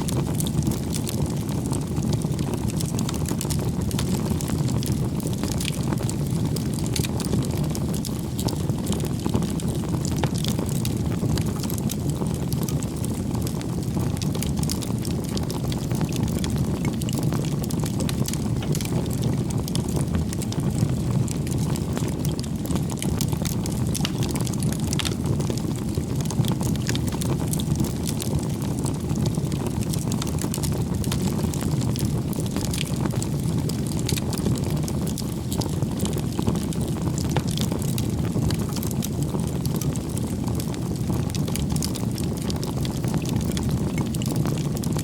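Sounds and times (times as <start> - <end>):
burning wood crackling and popping: 0.0 - 45.0
low rumble of flames: 0.0 - 45.0.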